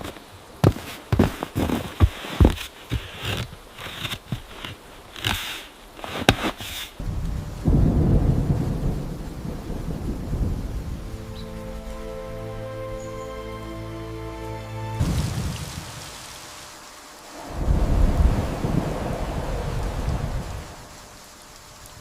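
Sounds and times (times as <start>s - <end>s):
knocks and rustles: 0.0s - 7.0s
thunder rumble: 7.0s - 12.4s, 15.0s - 22.0s.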